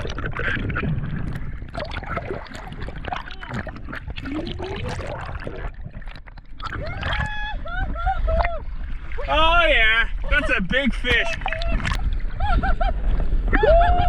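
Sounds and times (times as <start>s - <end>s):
water sloshing around boat: 0.0s - 13.4s.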